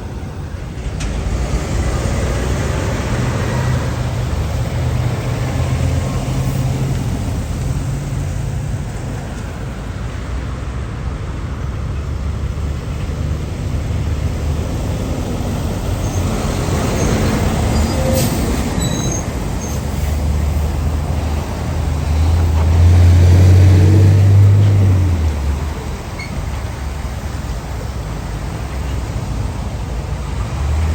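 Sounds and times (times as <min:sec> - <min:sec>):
diesel trucks passing: 0:00.0 - 0:30.9
high squeaks: 0:16.0 - 0:19.9.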